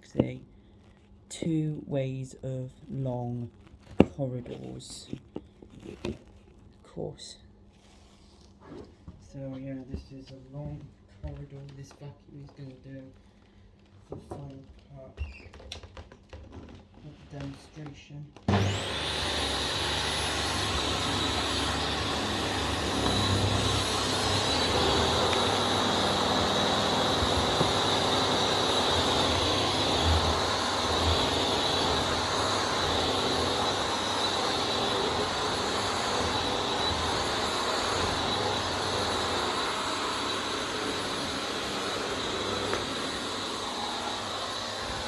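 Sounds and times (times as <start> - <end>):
vacuum cleaner running: 17.3 - 45.0.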